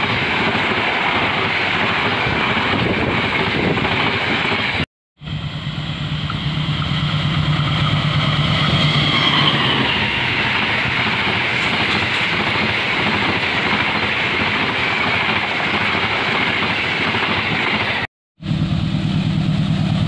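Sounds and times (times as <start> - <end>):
train wheels rolling on rails: 0.0 - 4.8, 5.6 - 18.1
high whine dropping in pitch: 5.2 - 10.4
locomotive engine hum: 5.2 - 12.3, 18.4 - 20.0.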